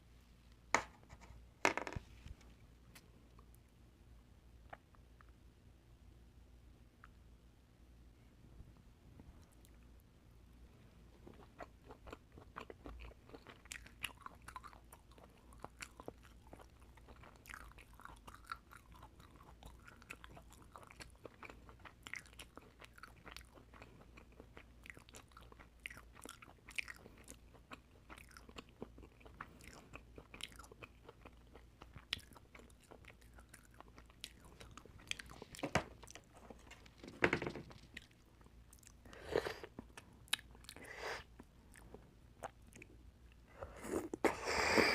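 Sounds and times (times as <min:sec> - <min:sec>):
chewing oysters: 0:11.1 - 0:37.0, 0:37.8 - 0:44.2.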